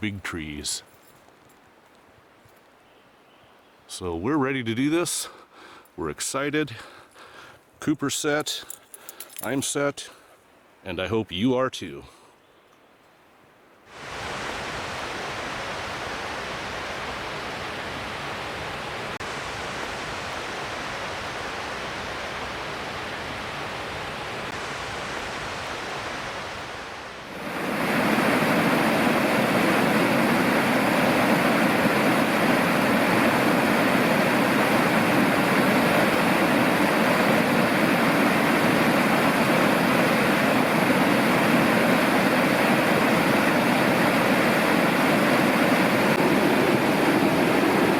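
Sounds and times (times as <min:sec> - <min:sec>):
river rushing: 0:13.9 - 0:47.9.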